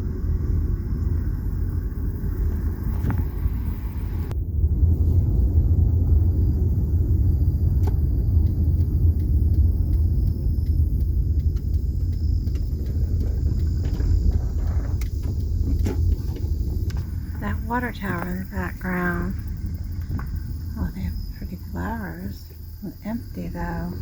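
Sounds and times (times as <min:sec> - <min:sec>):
hiss: 0:00.0 - 0:04.3
car driving heard from cabin: 0:00.0 - 0:24.0
faint ticks: 0:06.2 - 0:24.0.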